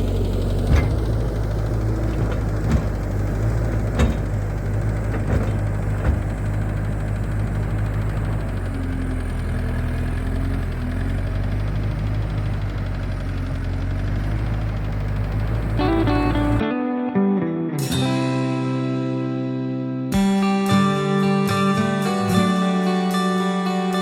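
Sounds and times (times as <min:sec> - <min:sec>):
diesel engine running: 0:00.0 - 0:16.6
sharp metallic knocks: 0:00.5 - 0:07.0.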